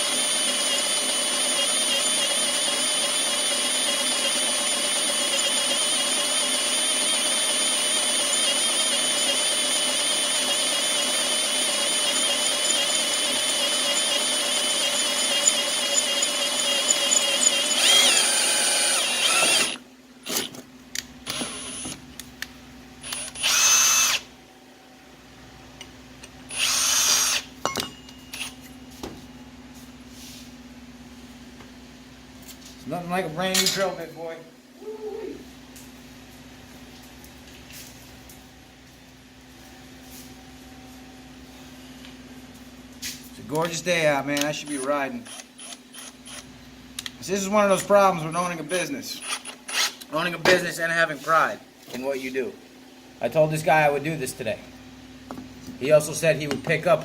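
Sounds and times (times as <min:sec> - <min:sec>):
electric drill boring into metal: 0:00.0 - 0:20.6, 0:21.2 - 0:22.0, 0:23.0 - 0:24.3, 0:26.5 - 0:27.5, 0:44.6 - 0:46.5, 0:48.3 - 0:50.1.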